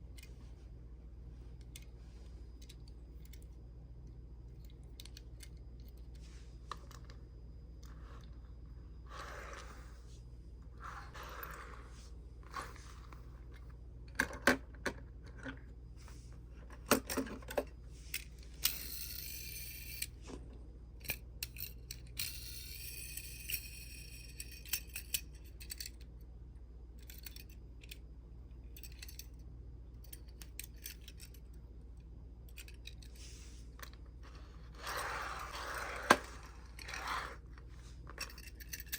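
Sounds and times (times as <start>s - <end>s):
toy cars scraping: 9.0s - 10.2s, 10.8s - 13.3s, 34.2s - 38.9s
toy cars clicking and clacking: 18.6s - 20.1s.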